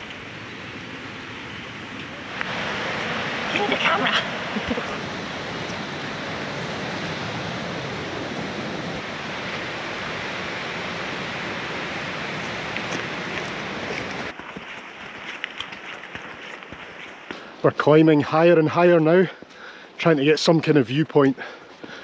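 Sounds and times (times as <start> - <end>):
river and waterfall rushing: 0.0 - 17.3.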